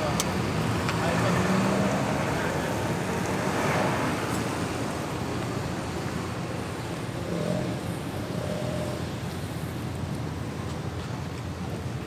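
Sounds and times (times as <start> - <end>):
car engines droning: 0.0 - 12.0.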